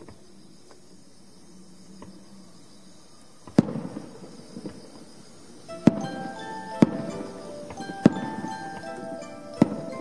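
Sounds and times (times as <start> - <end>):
firework crackle: 3.4 - 10.0
firework shells booming: 3.5 - 5.1, 5.7 - 10.0
ringing chime-like tones: 5.7 - 10.0.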